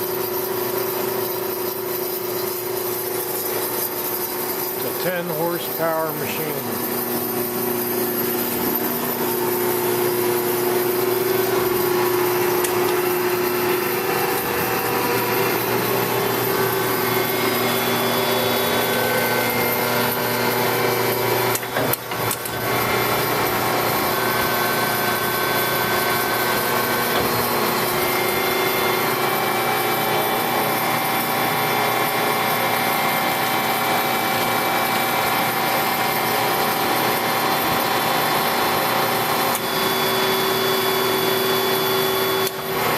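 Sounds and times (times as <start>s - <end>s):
machine hum: 2.4s - 32.5s
bandsaw sawing: 3.9s - 20.4s.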